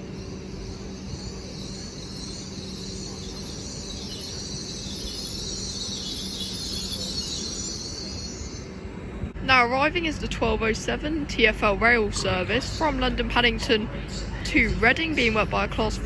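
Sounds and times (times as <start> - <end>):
high-pitched hiss and squeal: 0.0 - 9.2
train low hum: 0.0 - 16.0.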